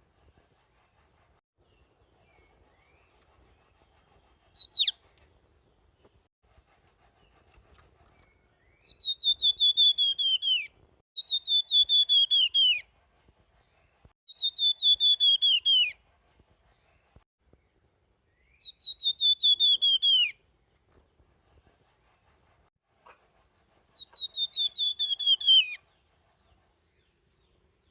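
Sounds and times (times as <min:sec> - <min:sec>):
bird singing fluting song: 0:04.6 - 0:05.0, 0:08.2 - 0:12.8, 0:14.3 - 0:16.0, 0:18.3 - 0:20.4, 0:24.0 - 0:26.0.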